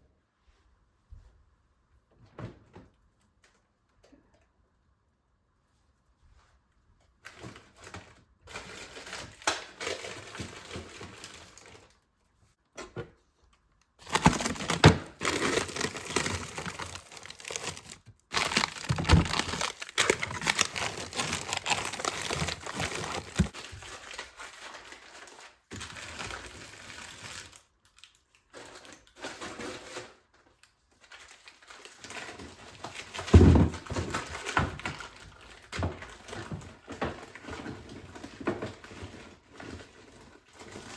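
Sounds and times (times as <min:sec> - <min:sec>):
packaging crinkling and rustling: 0:07.2 - 0:12.0, 0:14.0 - 0:40.9.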